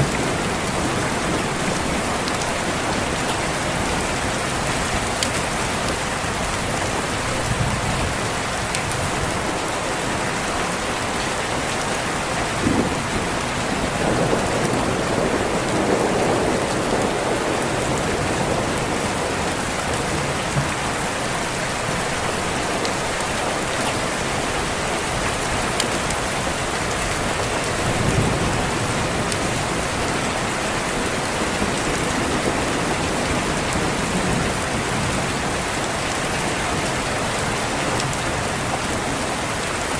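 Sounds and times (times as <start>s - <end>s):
thunder rolling: 0.0s - 4.0s, 12.6s - 20.9s, 27.8s - 35.3s
steady rain: 0.0s - 39.9s.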